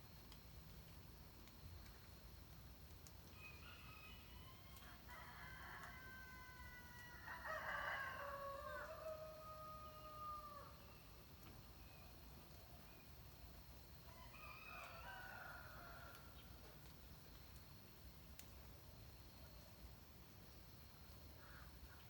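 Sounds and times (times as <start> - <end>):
distant roosters crowing: 3.3 - 11.1, 14.1 - 16.5.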